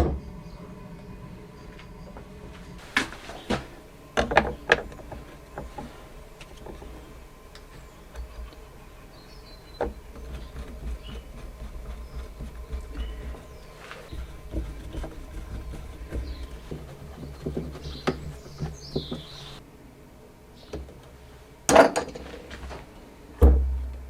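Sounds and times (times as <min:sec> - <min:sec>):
low steady rumble: 0:00.0 - 0:20.5, 0:22.7 - 0:24.0
sharp knocks and clicks: 0:04.2 - 0:07.0, 0:09.7 - 0:19.6.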